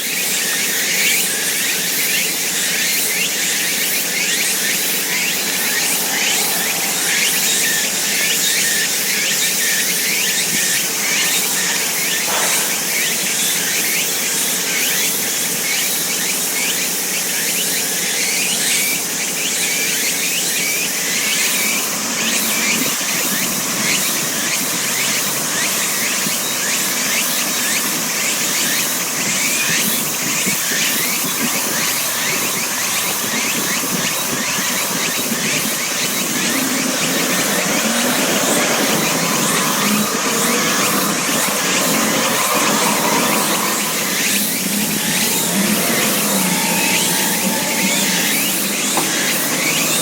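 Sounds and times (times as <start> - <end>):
chorus of high chirps: 0.4 - 15.0, 28.3 - 50.0
traffic rumble: 3.8 - 13.4.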